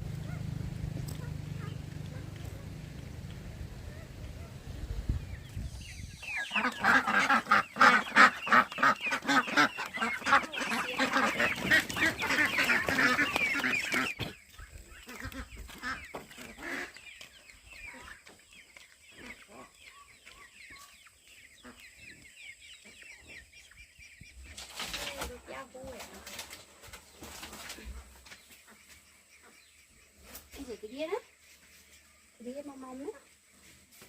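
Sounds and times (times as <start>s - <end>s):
poultry calling: 0.0s - 26.5s, 27.1s - 31.4s
faint high chirping: 3.8s - 6.9s.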